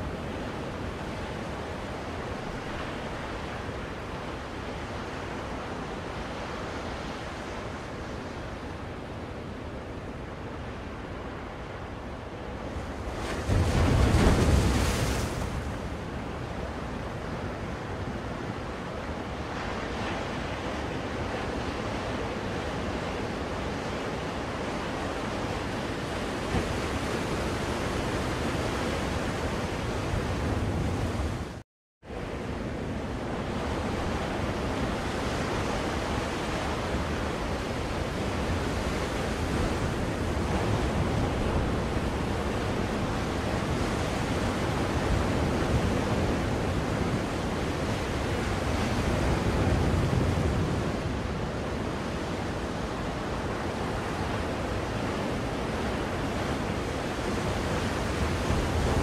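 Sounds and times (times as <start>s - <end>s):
ocean waves washing in: 0.0s - 59.0s
wave breaking: 13.4s - 16.0s.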